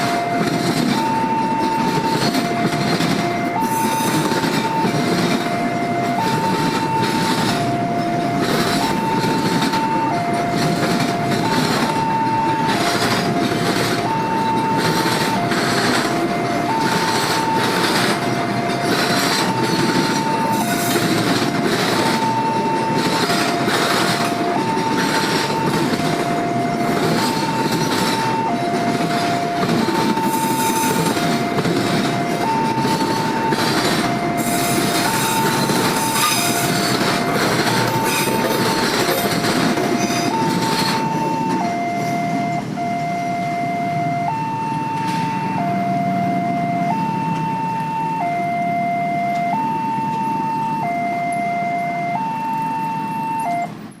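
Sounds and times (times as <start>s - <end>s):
freight train wagons rattling: 0.0s - 42.8s
level crossing two-tone alarm: 0.0s - 54.0s.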